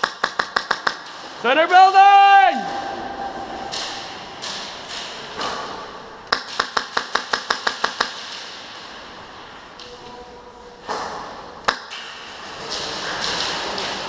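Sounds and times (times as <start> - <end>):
airsoft gun shots: 0.0 - 1.2.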